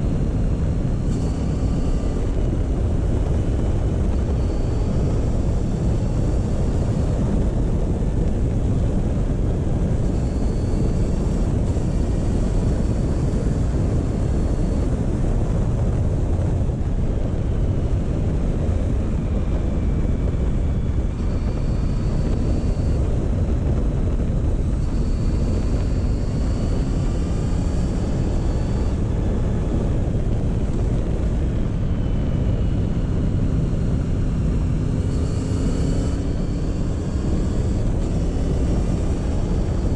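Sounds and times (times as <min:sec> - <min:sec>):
faint whine: 0:00.0 - 0:39.9
motorcycle engine running: 0:00.0 - 0:39.9
wind rushing over microphone: 0:00.0 - 0:39.9.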